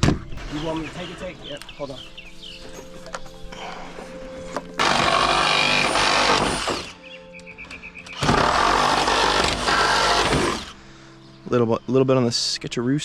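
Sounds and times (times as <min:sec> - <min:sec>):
reciprocating saw cutting wood: 0:04.8 - 0:07.0, 0:08.1 - 0:10.8.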